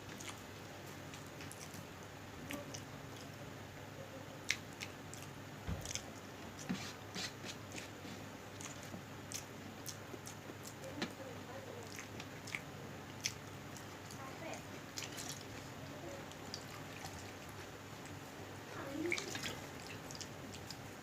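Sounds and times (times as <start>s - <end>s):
person chewing food: 0.0s - 3.4s, 4.4s - 11.2s, 11.8s - 18.3s, 19.0s - 21.0s
mouth clicks and smacks: 11.9s - 14.2s.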